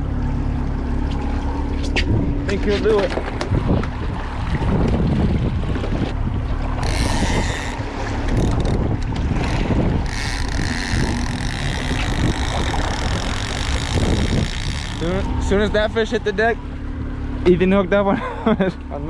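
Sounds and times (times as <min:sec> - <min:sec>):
boat motor running: 0:00.0 - 0:19.0
wind buffeting microphone: 0:01.8 - 0:16.6.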